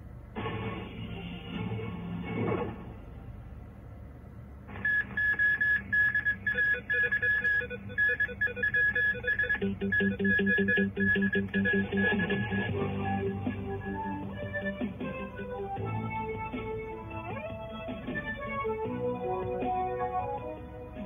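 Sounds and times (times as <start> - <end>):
high repeated beeps: 4.8 - 12.7.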